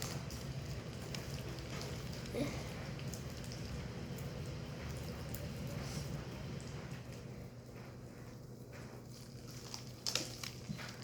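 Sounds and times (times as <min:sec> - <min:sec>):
low room rumble: 0:00.0 - 0:11.0
slime squishing by hand: 0:08.9 - 0:11.0.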